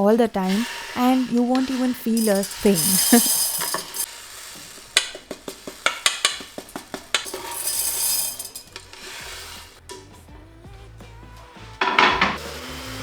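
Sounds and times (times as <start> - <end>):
rice grains pouring: 0.0 - 10.2
containers clicking and rattling: 0.5 - 10.1.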